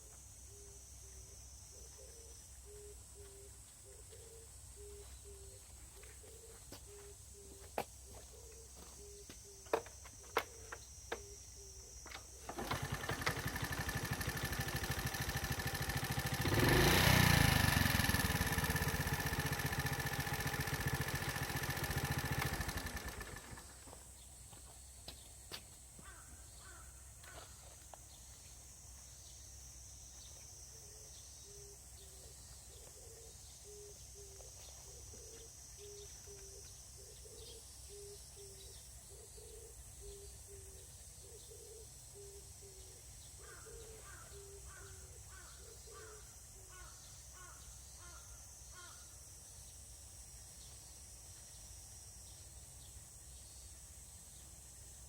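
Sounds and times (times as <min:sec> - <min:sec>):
insects droning: 0:00.0 - 0:55.0
crow cawing: 0:26.0 - 0:27.6, 0:43.4 - 0:49.1.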